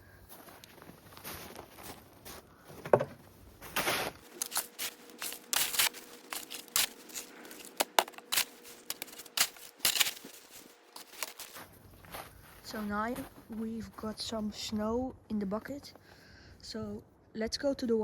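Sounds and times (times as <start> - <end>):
snow crunching into a bucket: 0.3 - 2.8, 3.4 - 14.8.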